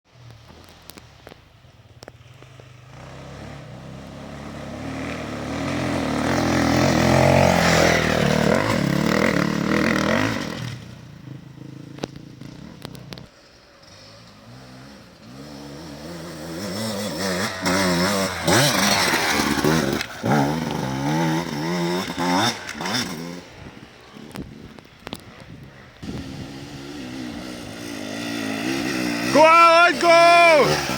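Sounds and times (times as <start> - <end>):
motorcycle engine revving: 0.1 - 30.9
motorcycles riding past: 0.1 - 30.9.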